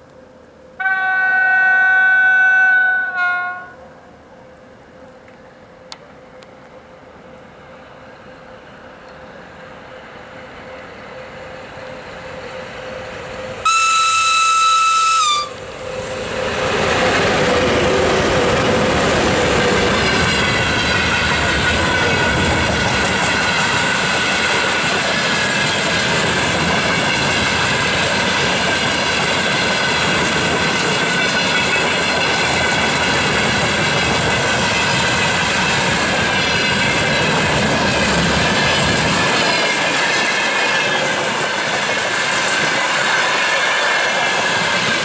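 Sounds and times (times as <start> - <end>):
steady high ringing tone: 0.0 - 13.7
high-pitched train horn blast: 0.6 - 6.5, 10.6 - 16.7
wheel-on-rail noise: 7.6 - 45.0.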